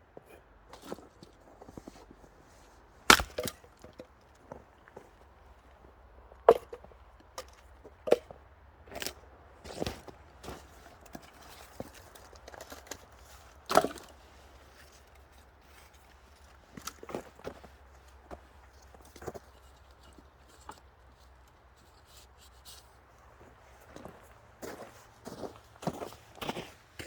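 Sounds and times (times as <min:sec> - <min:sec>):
axe striking wood: 0:03.1 - 0:03.7
wood pieces knocking and clattering: 0:03.1 - 0:04.1.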